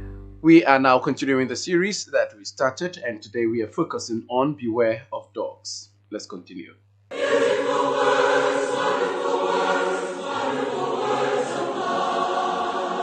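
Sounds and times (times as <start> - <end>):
choir singing: 7.1 - 13.0.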